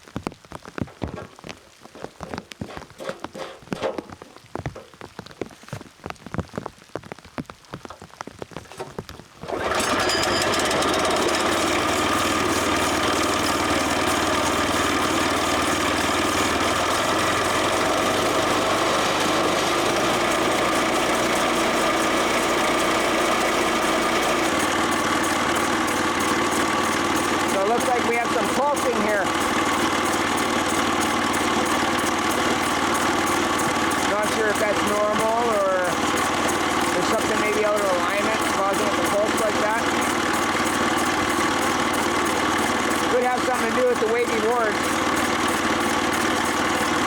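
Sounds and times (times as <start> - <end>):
rain pattering: 0.0 - 9.5, 23.2 - 46.6
bandsaw mill engine running: 9.4 - 47.0.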